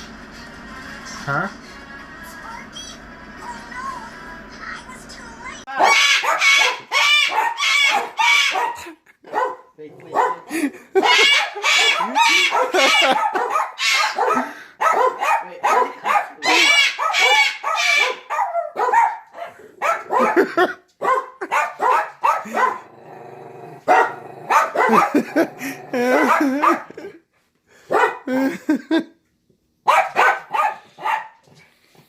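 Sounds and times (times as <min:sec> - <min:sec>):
cockatoo giving harsh calls: 0:05.7 - 0:08.8, 0:11.0 - 0:13.2, 0:13.8 - 0:14.3, 0:16.4 - 0:18.3.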